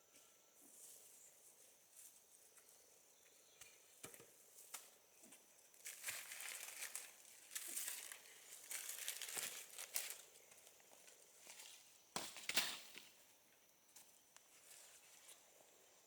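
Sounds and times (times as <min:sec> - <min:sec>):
faint rustling and crackling: 0:03.6 - 0:11.9, 0:13.9 - 0:16.0.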